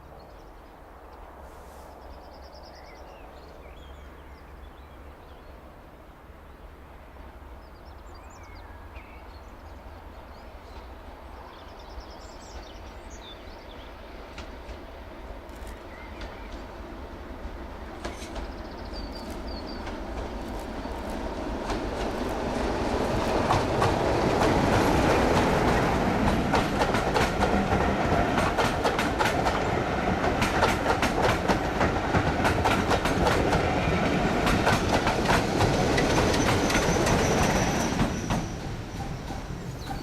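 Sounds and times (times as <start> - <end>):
train wheels clicking on rails: 12.2 - 40.0.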